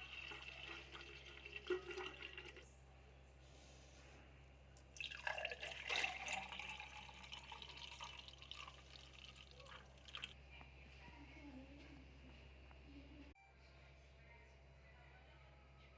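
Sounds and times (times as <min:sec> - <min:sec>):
juice pouring into glass: 0:00.0 - 0:02.6, 0:05.0 - 0:10.4.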